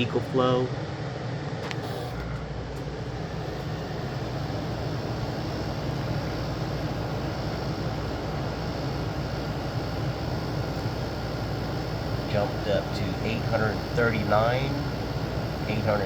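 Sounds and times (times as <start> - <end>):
air conditioner fan air rush: 0.0 - 16.0
compressor low hum: 0.0 - 16.0.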